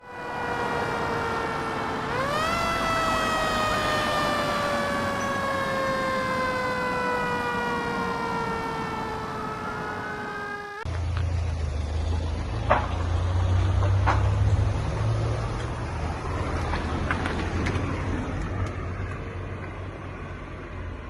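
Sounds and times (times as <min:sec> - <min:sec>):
faint rising and falling tone: 0:00.0 - 0:10.9
fire engine siren wailing: 0:00.0 - 0:10.9.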